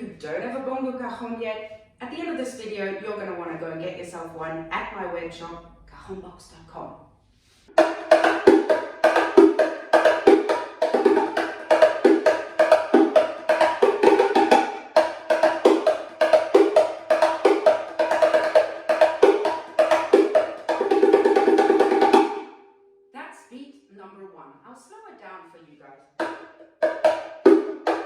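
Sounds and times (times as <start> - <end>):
hand drum playing: 7.7 - 22.5, 26.2 - 28.0.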